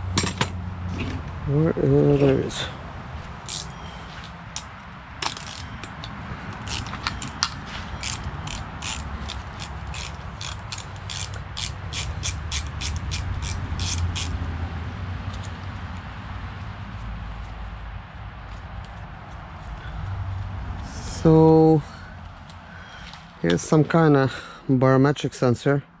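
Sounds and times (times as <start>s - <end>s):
ratchet wrench clicking: 3.4s - 3.8s, 4.6s - 14.4s.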